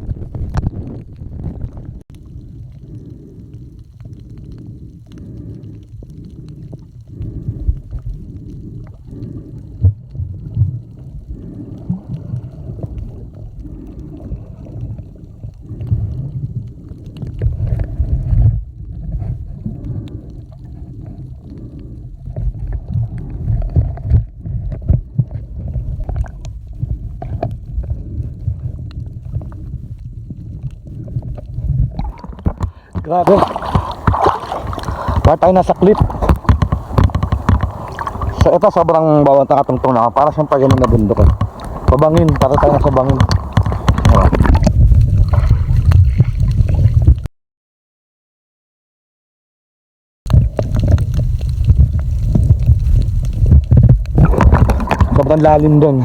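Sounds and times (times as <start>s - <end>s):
sea water sloshing: 6.8s - 47.3s, 50.3s - 56.0s
small knocks and clicks: 36.0s - 38.3s, 40.7s - 44.7s.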